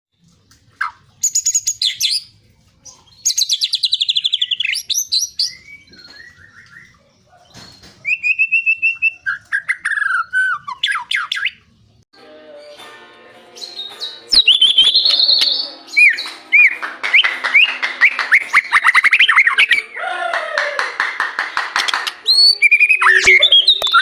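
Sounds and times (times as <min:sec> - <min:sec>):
bird singing whistled phrases: 0:03.2 - 0:07.0, 0:07.8 - 0:11.6, 0:13.6 - 0:19.9, 0:22.2 - 0:24.0.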